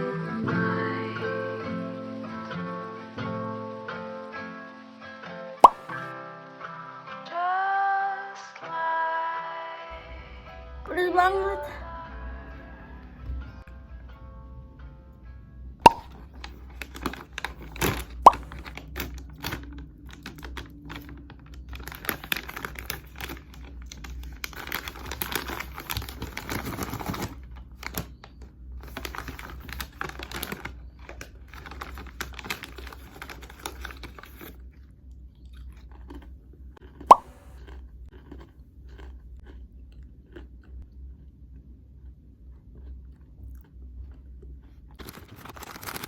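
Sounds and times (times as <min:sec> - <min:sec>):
sharp pop: 0:05.6 - 0:06.0, 0:15.9 - 0:16.2
crunchy chewing: 0:15.9 - 0:46.0.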